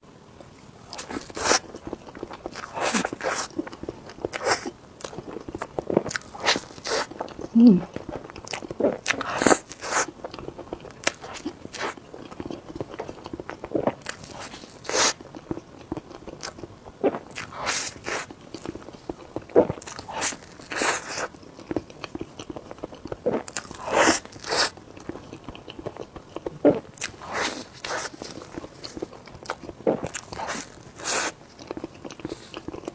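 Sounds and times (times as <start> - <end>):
chewing soft food: 0.3 - 32.9
squelchy mouth sounds: 7.5 - 7.9.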